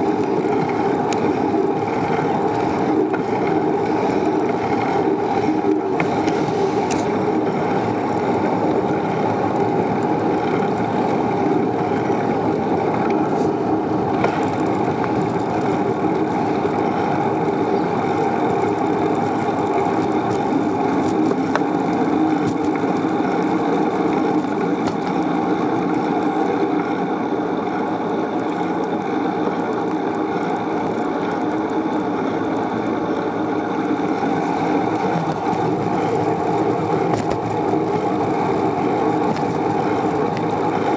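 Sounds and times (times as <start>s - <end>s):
bicycle tyres rolling on road: 0.0s - 40.9s.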